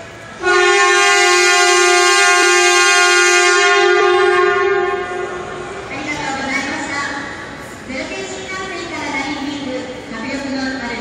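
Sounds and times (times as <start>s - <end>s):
train horn blast: 0.4s - 5.8s.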